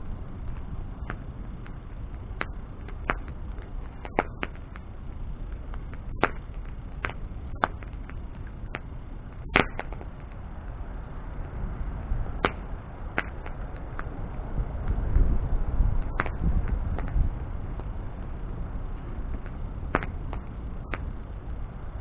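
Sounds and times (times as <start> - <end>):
bonfire pops and snaps: 0.0 - 22.0
low fire rumble: 0.0 - 22.0.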